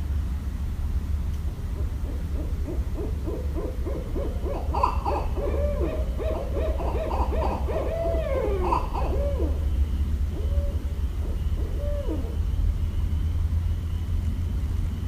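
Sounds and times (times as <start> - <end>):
steady low rumble: 0.0 - 15.0
owl hooting: 1.6 - 13.2.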